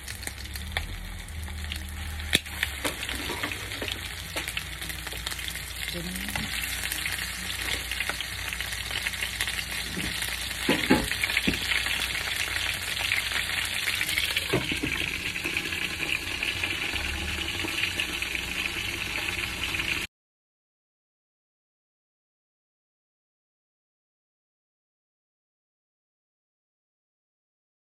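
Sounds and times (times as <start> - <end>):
chicken frying in hot oil: 0.0 - 20.1.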